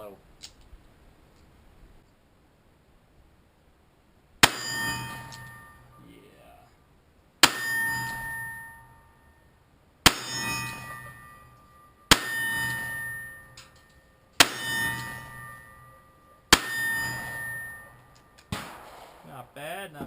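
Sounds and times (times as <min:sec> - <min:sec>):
revolver gunshots: 0:07.4 - 0:08.6, 0:10.0 - 0:11.3, 0:12.1 - 0:13.3, 0:14.4 - 0:15.9, 0:16.5 - 0:19.5.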